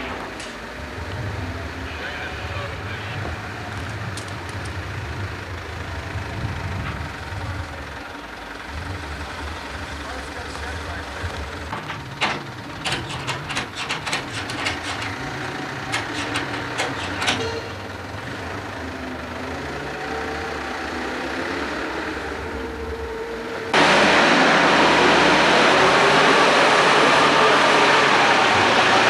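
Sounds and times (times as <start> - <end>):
vehicle engine idling: 0.0 - 23.8
sharp metallic knocks: 11.7 - 17.9
loud rushing noise: 23.7 - 29.0.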